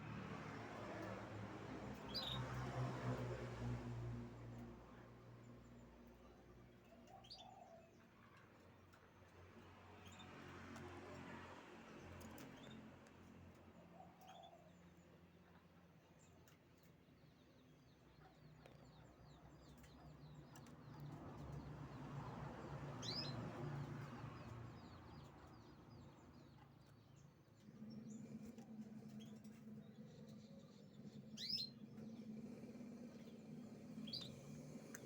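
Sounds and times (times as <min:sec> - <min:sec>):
canary singing: 0:30.4 - 0:32.3.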